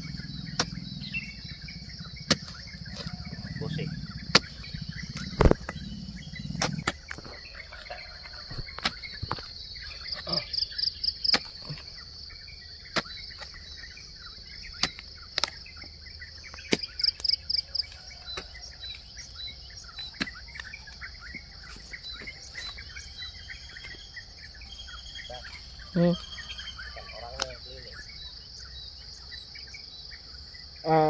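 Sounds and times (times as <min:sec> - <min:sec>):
birds chirping: 0:00.0 - 0:31.0
hoe striking soil: 0:00.4 - 0:00.8, 0:02.2 - 0:03.2, 0:04.2 - 0:04.6, 0:06.5 - 0:07.4, 0:08.5 - 0:09.5, 0:11.3 - 0:11.9, 0:12.9 - 0:13.6, 0:14.6 - 0:15.6, 0:16.5 - 0:19.0.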